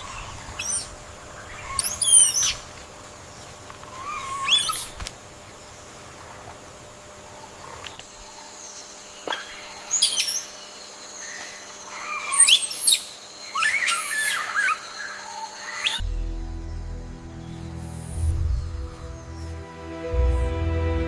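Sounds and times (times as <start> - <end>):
background music: 16.0 - 21.0.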